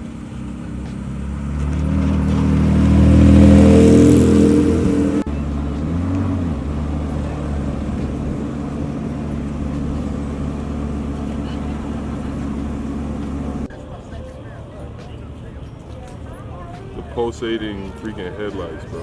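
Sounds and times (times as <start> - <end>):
car engine accelerating past: 0.0 - 13.7
steady low engine sound: 0.0 - 13.7.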